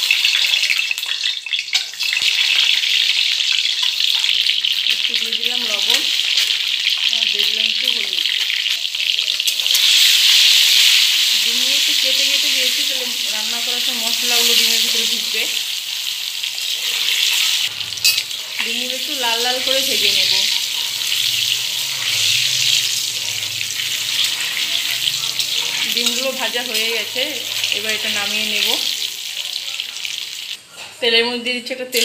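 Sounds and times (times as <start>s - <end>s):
eggs sizzling in hot oil: 0.0s - 30.6s.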